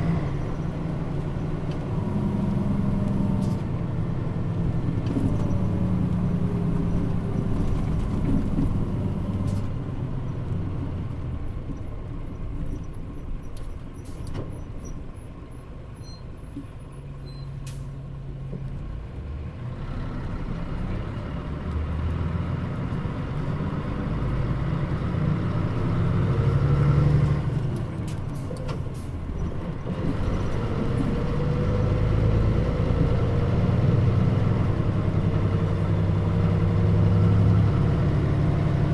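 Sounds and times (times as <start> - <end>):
bus diesel engine: 0.0 - 38.9
air brake clicks and hisses: 17.6 - 18.0.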